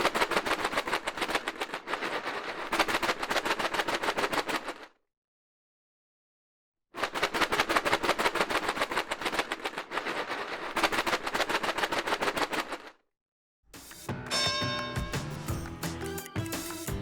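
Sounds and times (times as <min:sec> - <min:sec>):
rapid clatter of sharp clicks: 0:00.0 - 0:05.0, 0:07.0 - 0:13.0.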